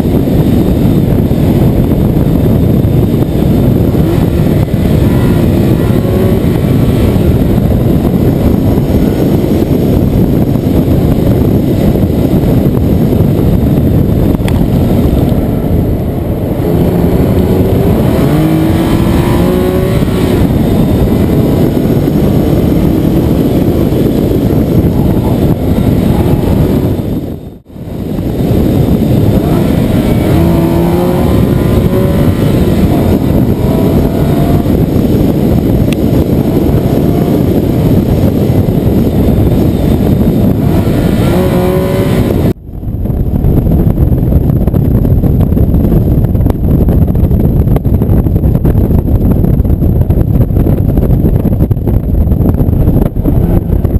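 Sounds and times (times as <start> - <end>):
car engine accelerating: 0.7 - 42.6.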